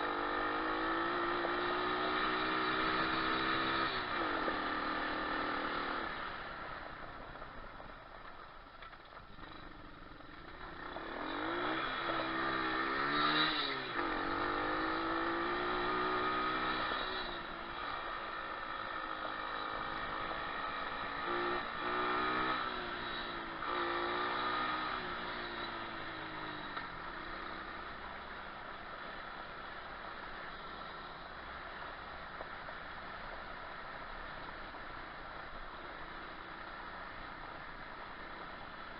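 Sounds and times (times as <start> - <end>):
motorcycle engine revving: 0.0 - 7.2, 8.8 - 32.1.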